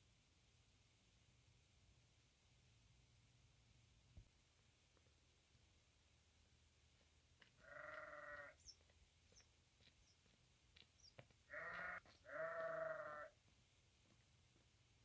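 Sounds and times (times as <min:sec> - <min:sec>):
livestock bleating: 0:07.6 - 0:08.6, 0:11.5 - 0:13.4.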